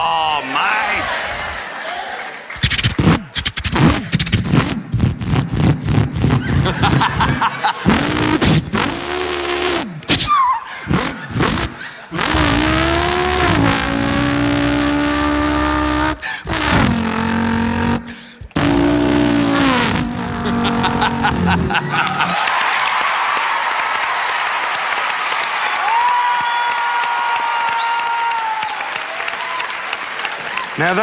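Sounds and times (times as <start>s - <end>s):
man imitating engine revs: 2.9s - 22.4s.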